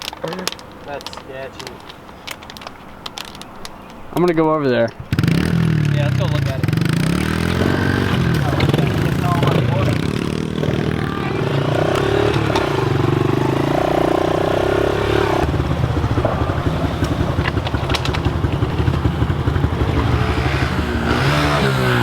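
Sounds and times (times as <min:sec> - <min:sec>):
small motorbike engine revving: 0:05.1 - 0:22.0.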